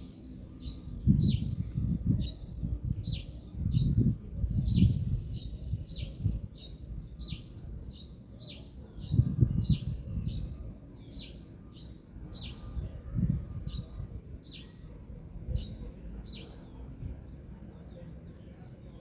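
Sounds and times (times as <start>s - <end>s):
wind rumble on microphone: 0.0s - 18.7s.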